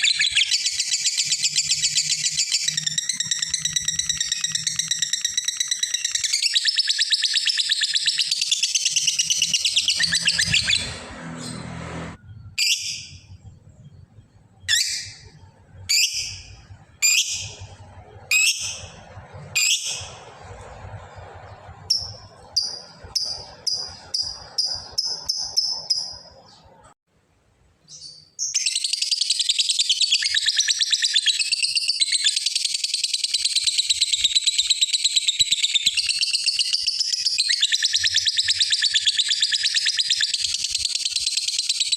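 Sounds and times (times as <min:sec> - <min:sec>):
lovebird chattering trill: 0:00.0 - 0:10.9, 0:21.9 - 0:26.6.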